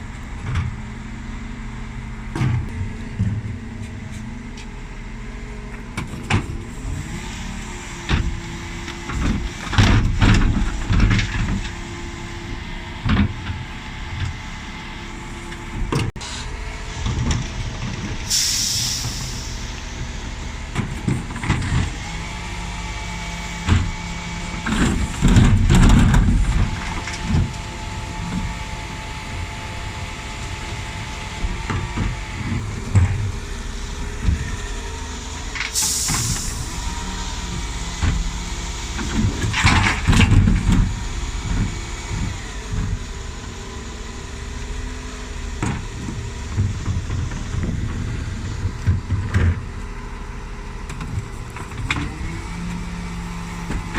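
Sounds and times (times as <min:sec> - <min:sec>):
lorry engine running: 0:00.0 - 0:53.9
air brake hisses: 0:18.2 - 0:19.8, 0:35.7 - 0:36.8.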